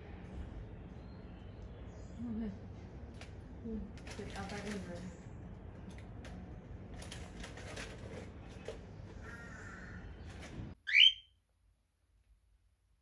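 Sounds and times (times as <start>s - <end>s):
bird whistled call: 10.9s - 11.3s.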